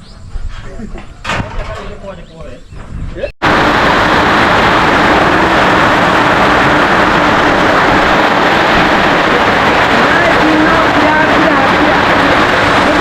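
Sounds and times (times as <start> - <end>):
heavy rain on a roof: 3.4 - 13.0.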